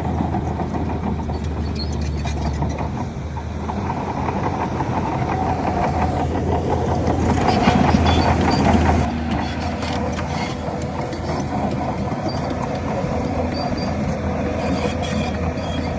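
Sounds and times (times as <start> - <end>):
bulldozer diesel engine: 0.0 - 15.9
running gear squeaks and clinks: 1.3 - 3.0, 7.3 - 15.9.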